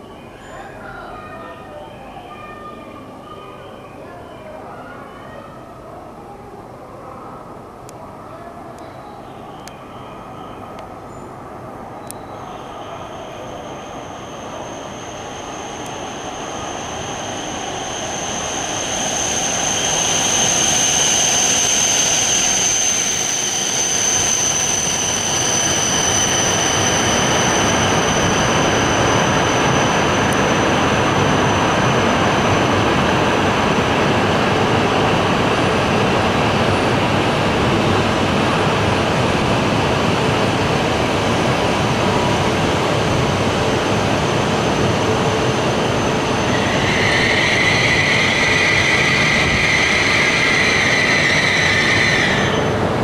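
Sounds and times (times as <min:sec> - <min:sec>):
high-pitched whine: 0:12.1 - 0:37.8
electric train running: 0:13.0 - 0:53.0.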